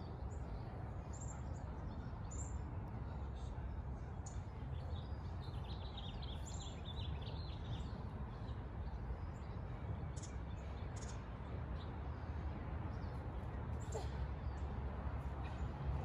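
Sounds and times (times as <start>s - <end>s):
small birds chirping: 4.1s - 16.0s.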